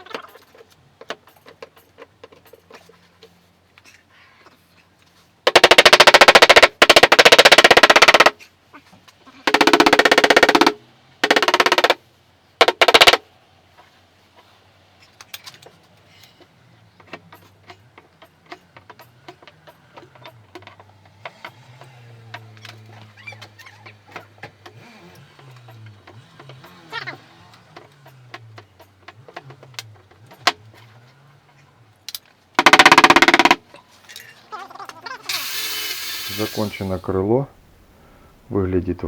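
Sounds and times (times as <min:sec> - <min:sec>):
power tool hammering rattle: 0:05.5 - 0:08.4, 0:09.5 - 0:12.0, 0:12.6 - 0:13.3, 0:15.1 - 0:34.3, 0:35.0 - 0:37.8.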